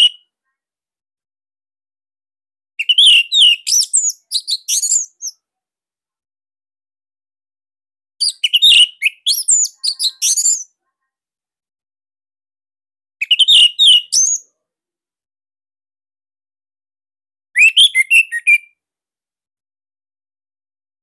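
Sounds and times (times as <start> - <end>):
thrush singing whistled phrases: 2.8 - 5.4, 8.2 - 10.7, 13.2 - 14.5, 17.6 - 18.8.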